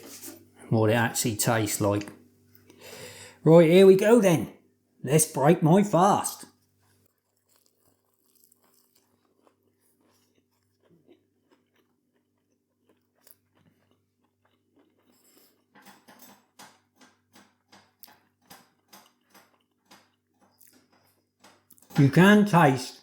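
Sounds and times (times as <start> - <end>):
person chewing bread: 6.5 - 21.9.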